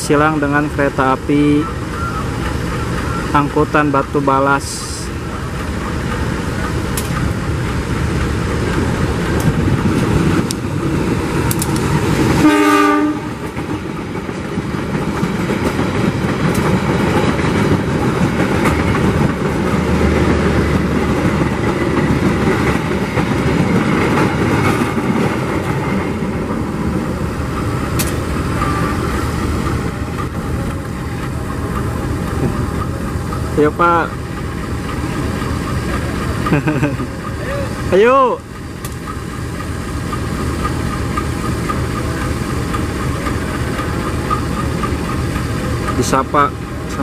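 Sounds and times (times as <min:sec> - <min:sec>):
diesel train rolling past: 0:00.0 - 0:47.0
locomotive horn blast: 0:12.4 - 0:13.5, 0:28.5 - 0:29.2
wheels clattering over rail joints: 0:13.4 - 0:47.0.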